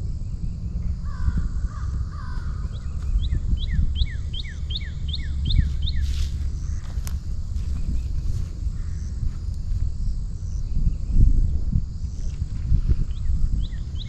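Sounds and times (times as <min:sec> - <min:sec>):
steady low rumble: 0:00.0 - 0:14.0
crow cawing: 0:01.0 - 0:03.2, 0:08.7 - 0:09.4.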